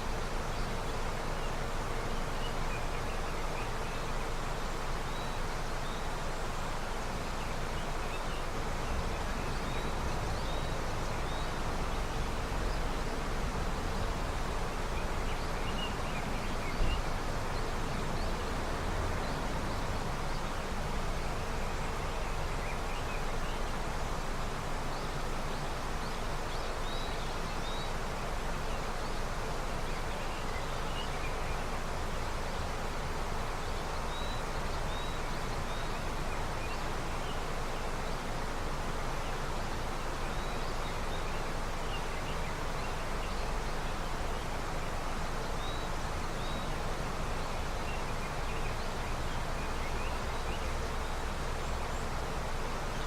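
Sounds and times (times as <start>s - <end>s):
river running: 0.0s - 53.0s
faint bird chirps: 25.0s - 52.2s.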